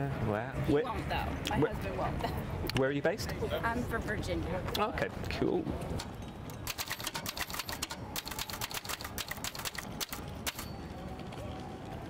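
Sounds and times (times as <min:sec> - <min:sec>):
typewriter keys clacking: 0:06.6 - 0:10.7.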